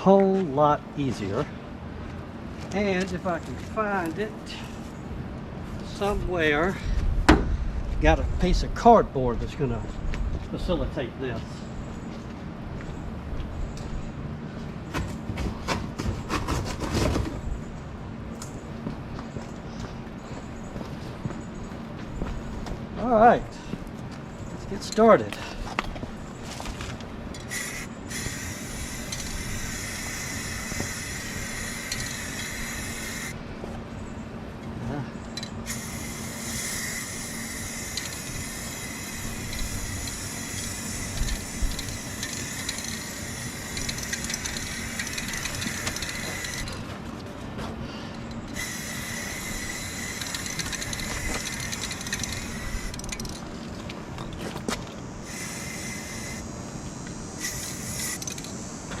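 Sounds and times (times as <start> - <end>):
spray paint can hissing: 27.5 - 33.4, 35.6 - 46.7, 48.5 - 53.4, 55.2 - 58.9.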